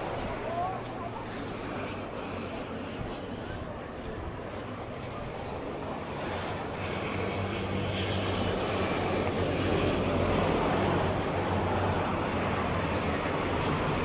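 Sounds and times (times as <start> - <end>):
passing engine hum: 0.0 - 14.0.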